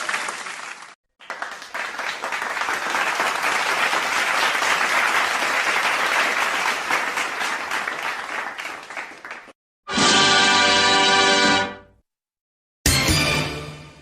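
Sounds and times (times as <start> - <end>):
crowd applause: 0.0 - 9.6.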